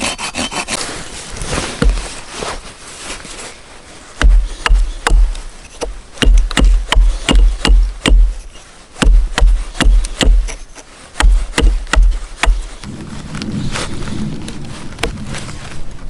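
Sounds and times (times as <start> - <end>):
wood being chopped: 1.8 - 2.0, 4.2 - 8.4, 9.0 - 10.6, 11.2 - 12.7.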